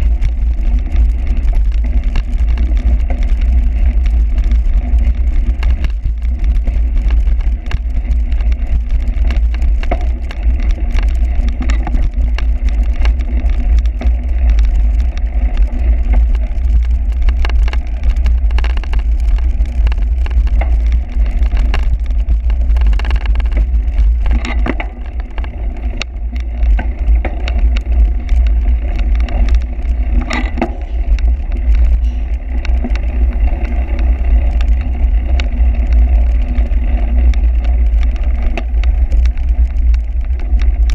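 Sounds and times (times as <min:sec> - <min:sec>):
clicks and rattles: 0:00.0 - 0:40.9.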